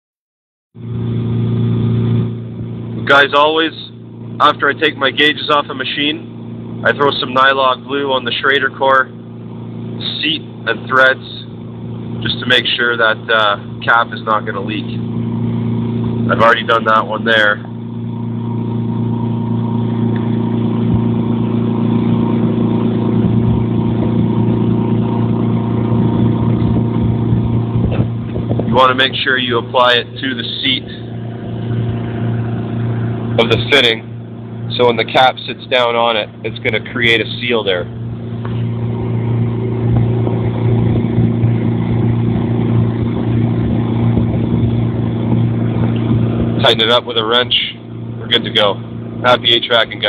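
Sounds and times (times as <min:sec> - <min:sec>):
air conditioner unit humming: 0:00.8 - 0:50.0.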